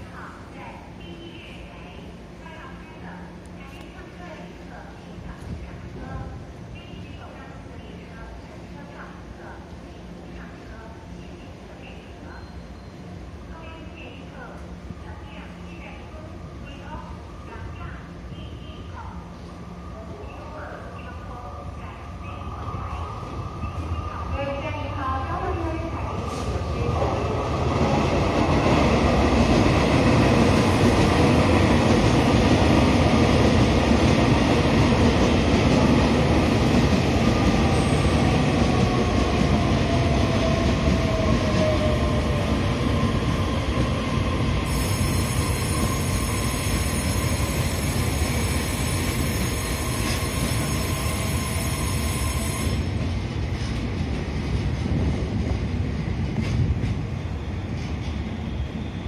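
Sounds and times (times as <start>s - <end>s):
train wheels rumbling on rails: 21.8s - 59.0s.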